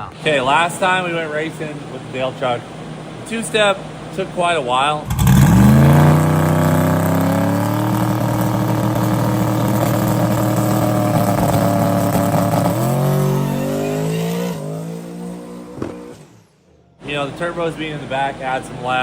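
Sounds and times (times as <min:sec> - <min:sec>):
truck engine revving: 0:05.0 - 0:16.7.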